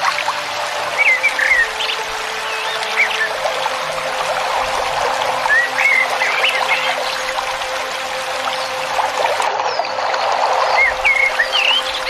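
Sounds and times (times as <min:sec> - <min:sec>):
water trickling and splashing: 0:00.0 - 0:12.0
songbird whistling: 0:00.9 - 0:03.4, 0:05.5 - 0:07.2, 0:10.6 - 0:12.0.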